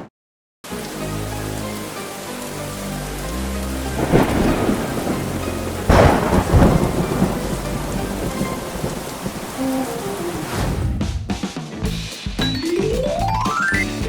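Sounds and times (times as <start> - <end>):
soft background music: 0.7 - 8.9, 12.4 - 14.0
steady rain: 0.7 - 10.8
thunder crashes: 4.0 - 11.3.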